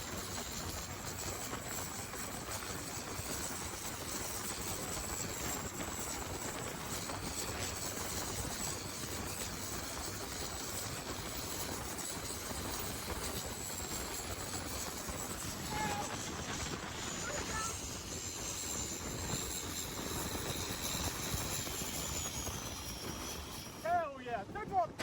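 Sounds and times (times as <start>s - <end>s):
boat engines running flat out: 0.2s - 23.9s
thin high whistle: 15.4s - 16.4s.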